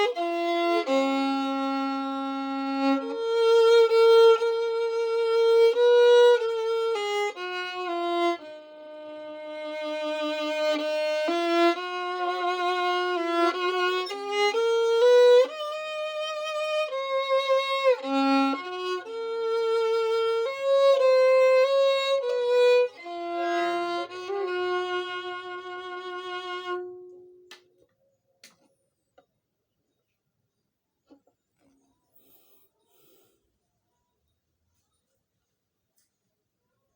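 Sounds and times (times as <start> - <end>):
slow violin melody: 0.0 - 27.6.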